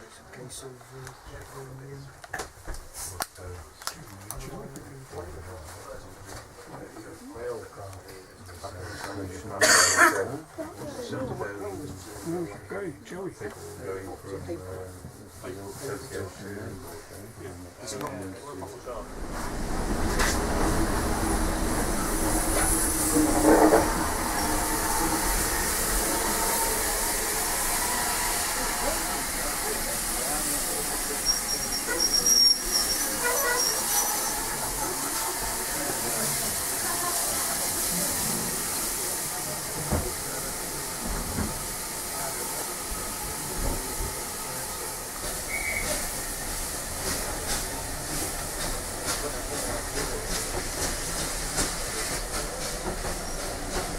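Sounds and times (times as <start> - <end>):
train wheel and running noise: 0.0 - 53.9
steam hissing: 19.0 - 53.9
wheel squeal: 31.2 - 34.4.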